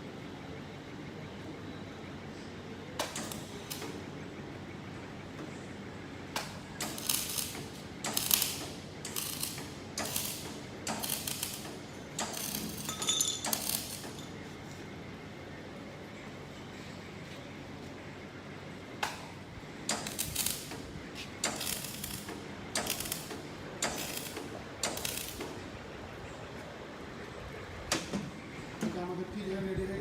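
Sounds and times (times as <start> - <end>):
welding crackling bursts: 6.8 - 12.9, 13.5 - 14.1, 19.9 - 20.8, 21.4 - 25.6.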